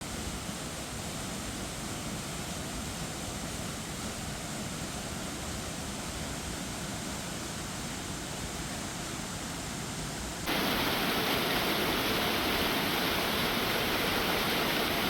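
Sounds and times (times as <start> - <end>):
waterfall roaring: 10.4 - 15.0.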